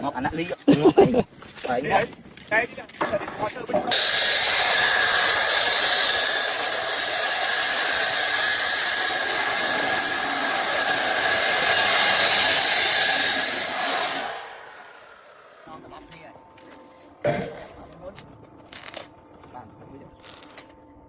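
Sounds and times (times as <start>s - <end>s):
loud hissing machine: 3.9s - 15.7s.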